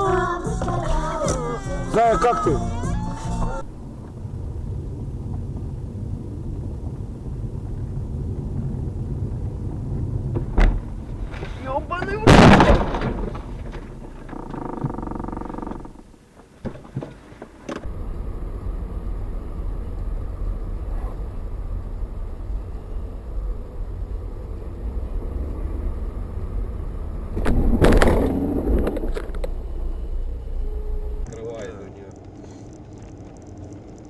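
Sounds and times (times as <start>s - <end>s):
car engine and road noise: 0.0s - 34.0s
short steady pitched tone: 29.6s - 31.4s.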